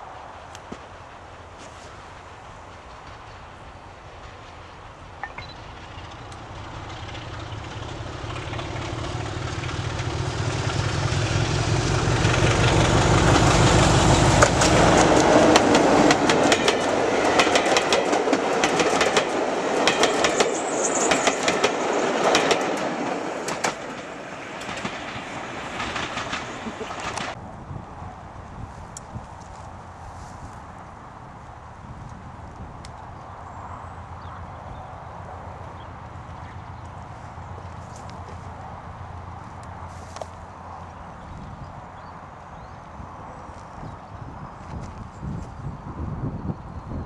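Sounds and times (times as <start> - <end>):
wheels clickety-clack on rail joints: 0.0 - 27.4
diesel locomotive engine rumble: 0.0 - 28.3.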